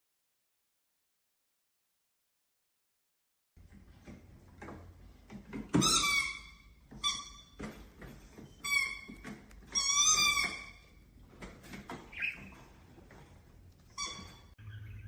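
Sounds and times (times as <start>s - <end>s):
parrot calling: 11.9s - 12.7s, 13.9s - 15.0s.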